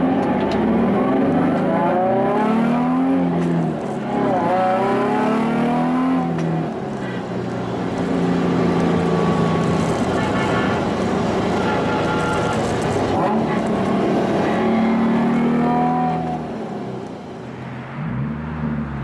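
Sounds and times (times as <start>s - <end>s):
car engine accelerating hard: 0.0s - 6.7s.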